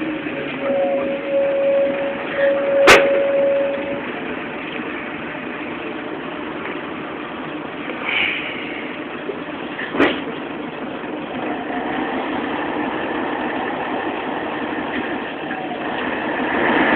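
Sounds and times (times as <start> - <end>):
bus engine running: 0.0 - 16.9
steady buzzer tone: 0.6 - 4.1.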